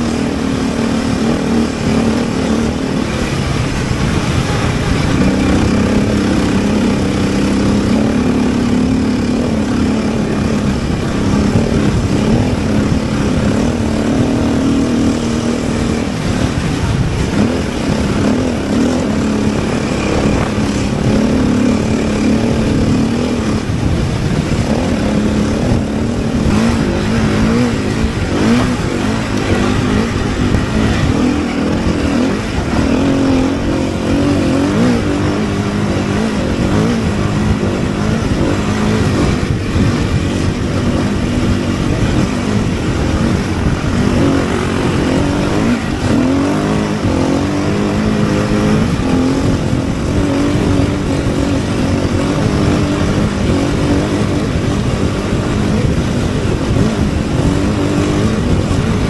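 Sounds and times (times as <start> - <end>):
car engine revving: 0.0 - 59.0
road and tyre noise: 0.0 - 59.0.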